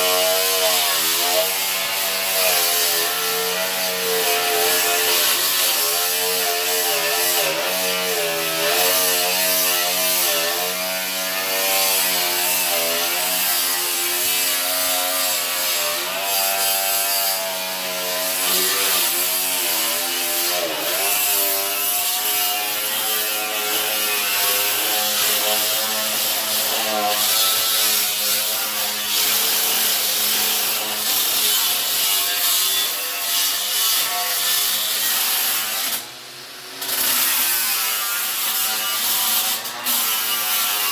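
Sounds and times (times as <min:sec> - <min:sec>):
power tool grinding metal: 0:00.0 - 0:40.9.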